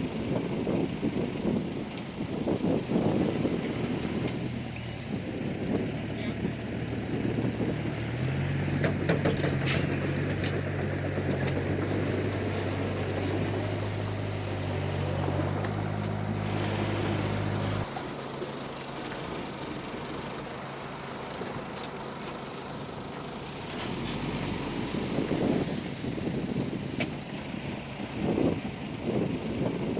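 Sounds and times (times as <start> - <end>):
bulldozer diesel engine droning: 0.0 - 29.9
short high squeak: 9.6 - 10.4.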